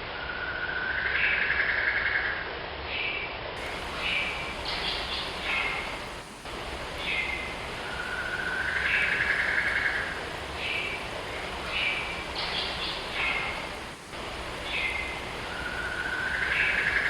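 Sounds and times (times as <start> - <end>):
steady background hiss: 2.5 - 17.0
birds calling: 3.6 - 17.0.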